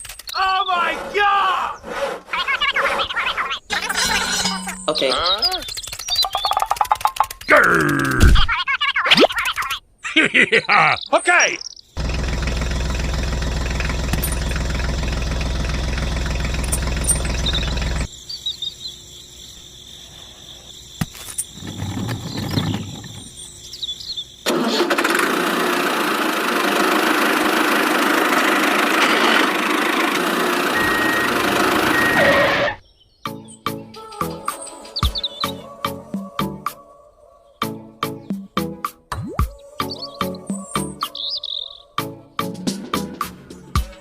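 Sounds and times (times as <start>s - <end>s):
scattered small sounds: 0.0s - 0.4s, 3.7s - 8.3s, 9.2s - 9.8s
engine humming: 12.0s - 18.1s, 21.6s - 32.8s.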